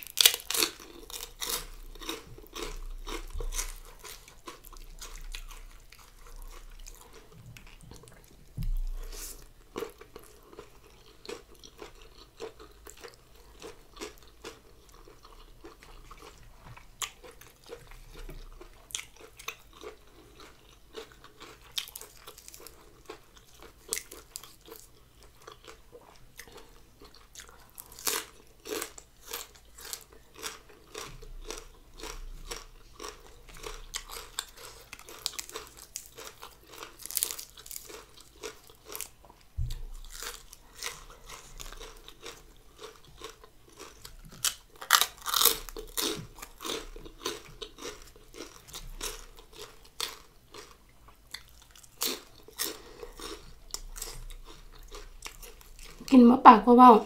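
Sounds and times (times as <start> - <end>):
person chewing crunchy food: 0.0 - 56.1
low thump: 8.6 - 9.2, 39.6 - 40.0.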